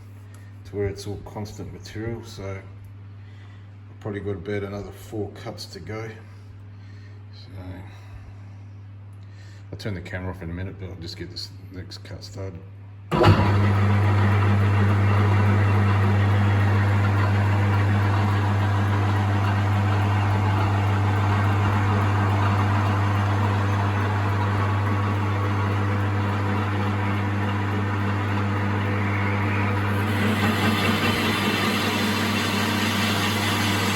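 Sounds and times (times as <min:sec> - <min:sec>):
lathe motor hum: 0:13.1 - 0:33.9
tool grinding on metal: 0:13.1 - 0:33.9.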